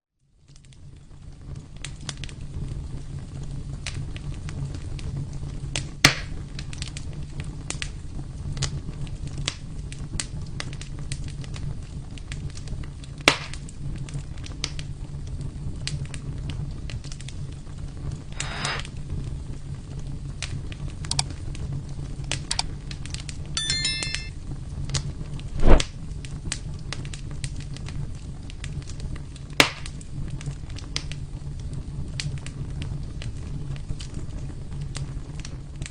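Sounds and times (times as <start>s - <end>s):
wood fire crackling: 0.3s - 23.5s, 24.7s - 35.9s
fire sharp pops: 3.8s - 7.9s, 8.5s - 15.0s, 26.5s - 31.4s.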